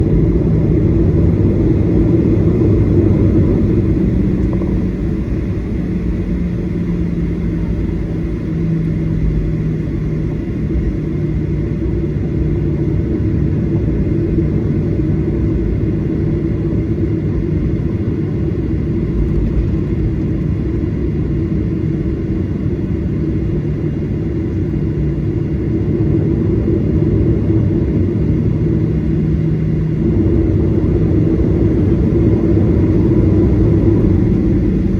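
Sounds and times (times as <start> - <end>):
jet engines rumbling in cabin: 0.0 - 34.9.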